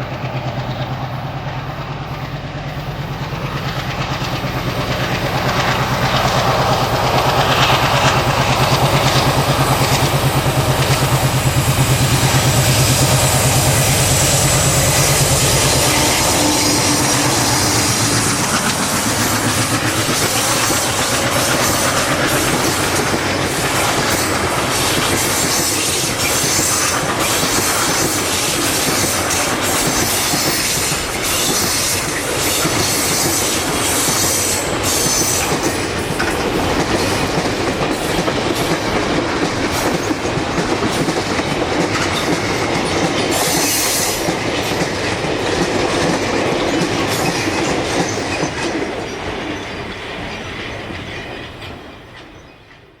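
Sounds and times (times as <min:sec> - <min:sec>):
train wheels clicking over rails: 0:00.0 - 0:53.0.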